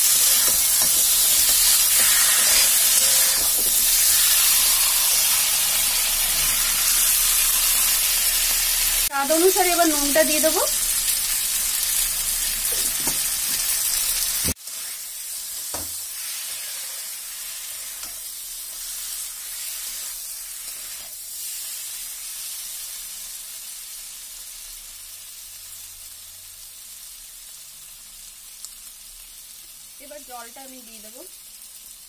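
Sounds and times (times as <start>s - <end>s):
metal spatula scraping a pan: 0.0s - 7.9s
food sizzling in a pan: 0.0s - 32.0s.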